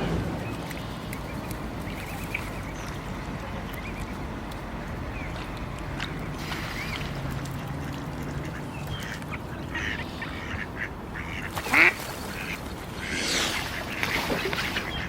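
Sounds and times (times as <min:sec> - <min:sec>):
cygnets peeping: 0:05.1 - 0:15.0.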